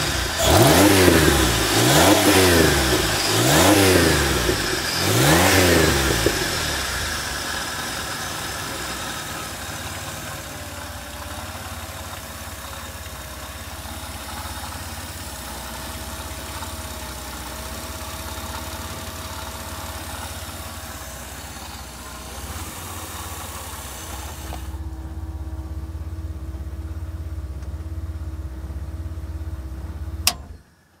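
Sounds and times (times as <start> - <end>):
car engine idling: 0.0 - 31.0
sharp click: 30.2 - 30.6.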